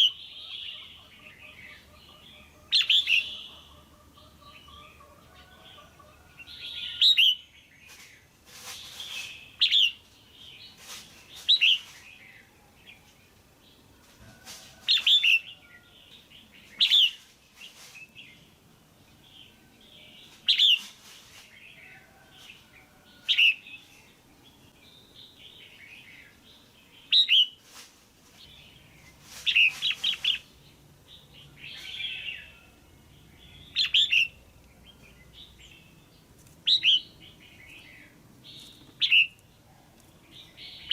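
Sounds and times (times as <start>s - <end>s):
bulbul chirping calls: 33.5s - 34.5s, 36.6s - 39.4s.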